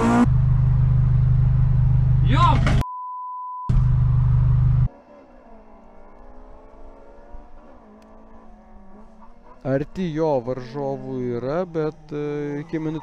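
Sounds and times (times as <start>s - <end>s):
car engine in cabin: 0.0s - 2.8s, 3.7s - 13.0s
censor bleep: 2.8s - 3.7s
car accelerating past roadside: 4.9s - 9.6s.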